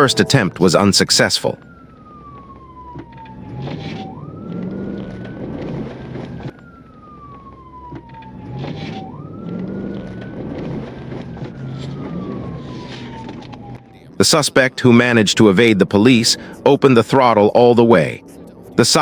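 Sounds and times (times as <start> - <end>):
police siren wailing: 0.0 - 19.0
vehicle and road noise: 1.6 - 14.2.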